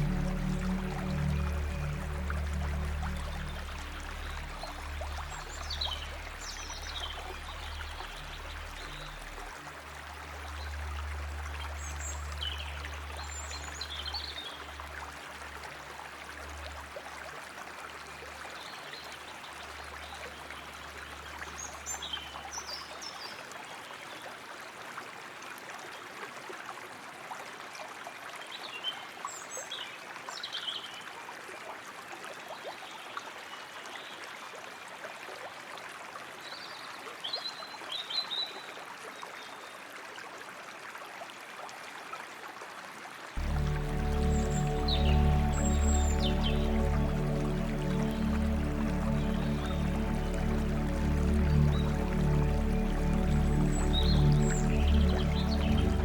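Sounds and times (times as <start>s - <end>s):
low hum: 0.0s - 14.3s, 43.4s - 56.0s
water trickling: 0.0s - 28.4s, 40.1s - 56.0s.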